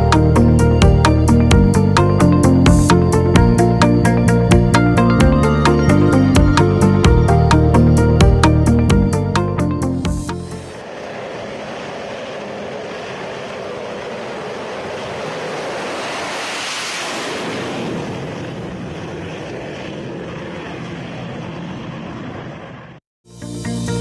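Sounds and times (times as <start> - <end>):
jet aircraft passing: 0.0 - 23.0.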